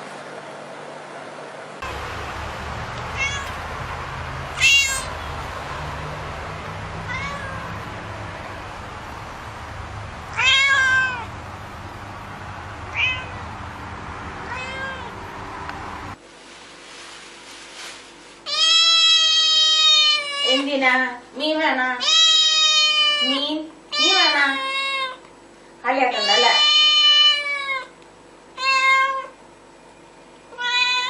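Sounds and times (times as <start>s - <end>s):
steady low hum: 0.4s - 18.3s
cat meowing: 3.0s - 3.6s, 4.6s - 5.3s, 7.0s - 7.9s, 10.3s - 11.3s, 12.9s - 13.5s, 14.4s - 15.2s, 18.5s - 20.6s, 22.0s - 25.2s, 26.1s - 27.9s, 28.6s - 29.4s, 30.5s - 31.0s.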